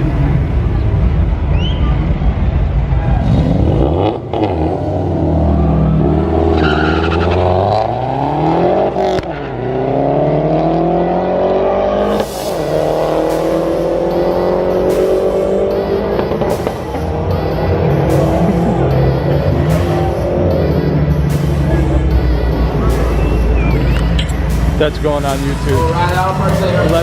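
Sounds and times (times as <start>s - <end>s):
car engine accelerating through gears: 3.0s - 27.0s.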